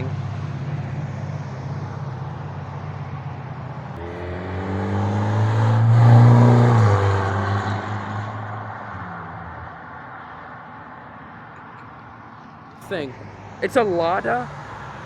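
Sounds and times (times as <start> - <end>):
car driving past: 0.0 - 10.2.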